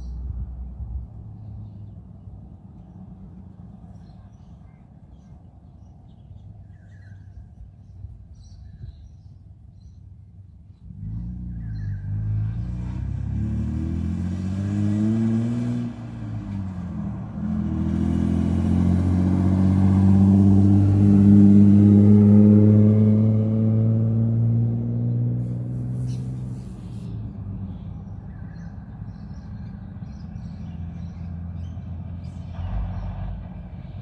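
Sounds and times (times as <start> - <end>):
dirt bike engine revving: 12.0 - 15.9, 17.5 - 27.2
low rumble: 32.3 - 34.0.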